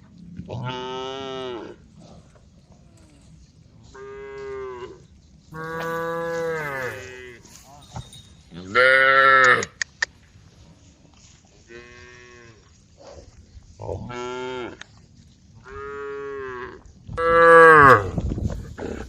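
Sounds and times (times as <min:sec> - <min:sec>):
cattle mooing: 0:05.6 - 0:07.6.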